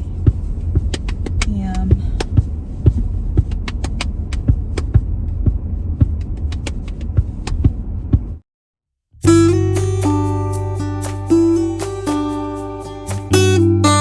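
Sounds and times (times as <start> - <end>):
car cabin rumble: 0.0 - 8.4
strummed acoustic guitar music: 9.2 - 14.0.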